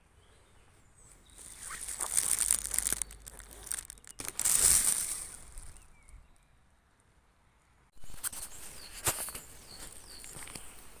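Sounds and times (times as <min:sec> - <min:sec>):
bird chirps: 0:00.2 - 0:06.7, 0:08.0 - 0:10.8
rustles and clicks: 0:01.4 - 0:05.8.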